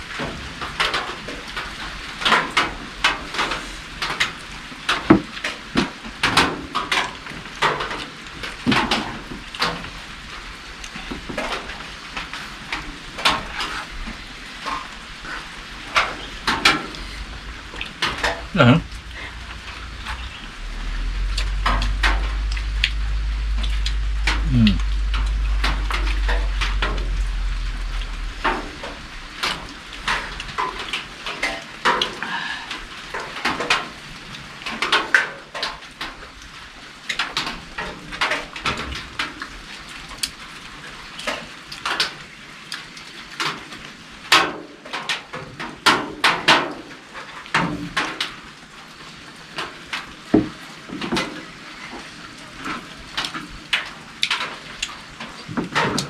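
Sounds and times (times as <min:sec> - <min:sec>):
rain hissing: 0:00.0 - 0:44.1.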